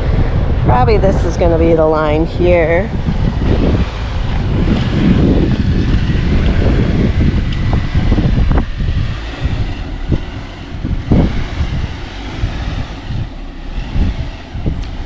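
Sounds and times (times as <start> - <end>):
wind buffeting microphone: 0.0 - 15.0
off-road vehicle crawling on rocks: 3.1 - 15.0.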